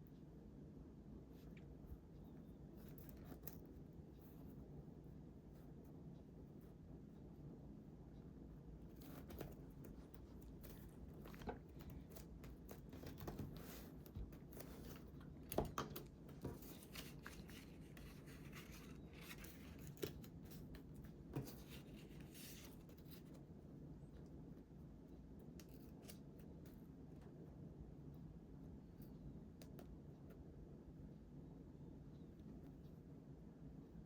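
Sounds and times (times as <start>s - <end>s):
paper rustling: 9.0s - 23.4s.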